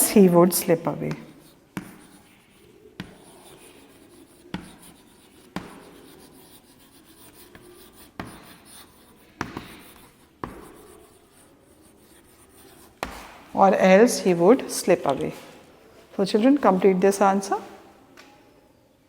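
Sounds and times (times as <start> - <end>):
writing tool tapping board: 1.0 - 2.2, 3.0 - 11.0
scratching on a board: 1.0 - 13.5.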